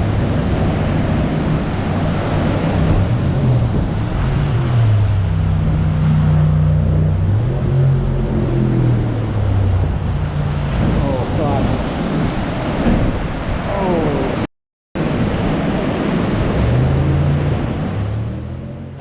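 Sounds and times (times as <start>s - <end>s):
motorboat engine running: 0.0s - 13.5s
rush of wind and water: 0.0s - 19.0s.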